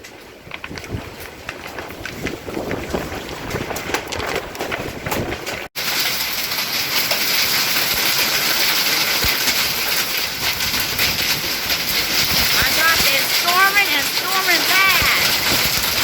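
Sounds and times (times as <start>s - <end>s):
hail impacts tapping: 0.0s - 16.0s
wind: 0.0s - 16.0s
heavy rain downpour: 5.3s - 16.0s.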